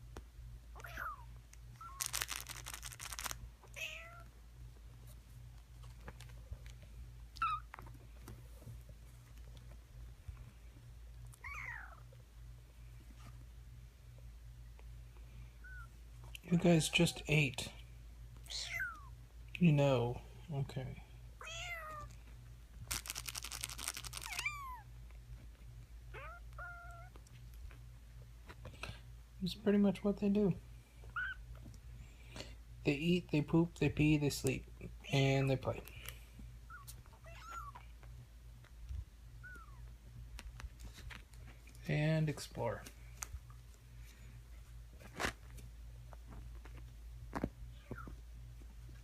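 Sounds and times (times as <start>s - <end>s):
kitten mewing: 0.8s - 2.1s, 3.6s - 4.3s, 11.4s - 12.0s, 18.4s - 19.1s, 24.1s - 24.9s, 26.1s - 27.2s, 36.7s - 37.9s, 39.4s - 39.9s.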